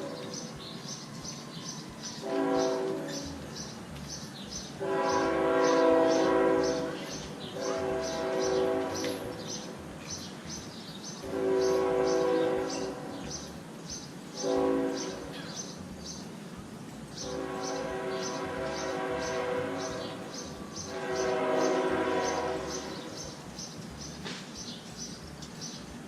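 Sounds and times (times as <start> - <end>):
train horn blasts: 2.1 - 3.5, 4.8 - 9.8, 11.2 - 13.5, 14.4 - 15.6, 17.2 - 23.6.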